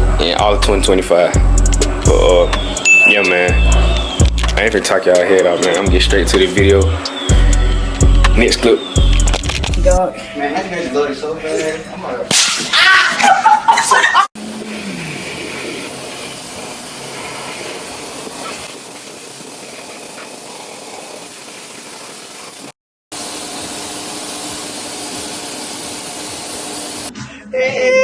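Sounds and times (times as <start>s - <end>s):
vacuum cleaner running: 14.4s - 27.1s.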